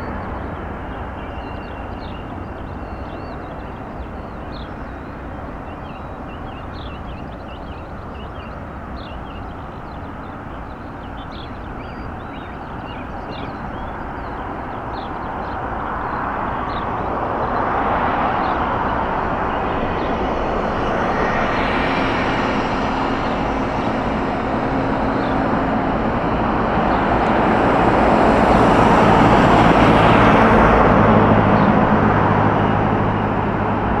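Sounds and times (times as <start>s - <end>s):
jet engines rushing: 9.6s - 34.0s.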